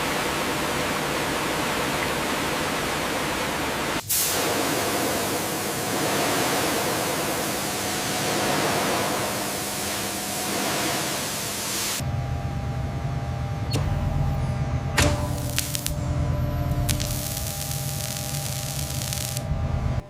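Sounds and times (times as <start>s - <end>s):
steady rushing hiss: 0.0s - 12.0s, 15.3s - 16.0s, 16.8s - 19.4s
low hum: 0.0s - 20.0s.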